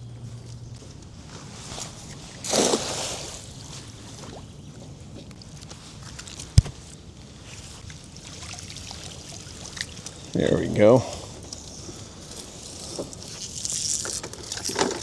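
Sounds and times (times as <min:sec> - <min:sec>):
knock against boat: 0:06.6 - 0:06.8.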